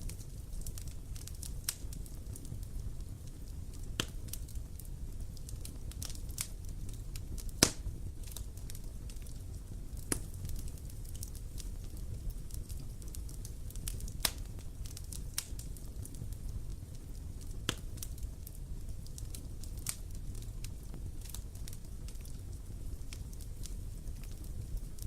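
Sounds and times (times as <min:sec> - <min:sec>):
low rumble of flame: 0:00.0 - 0:25.0
wood fire crackling and popping: 0:00.0 - 0:25.0.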